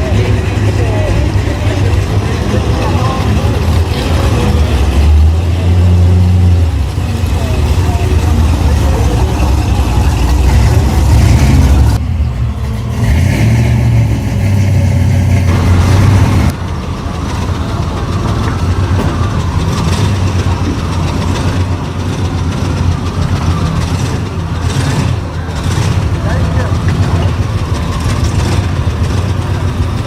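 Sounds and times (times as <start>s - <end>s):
background voices: 0.0s - 13.0s
vehicle engine rumbling: 0.0s - 30.0s.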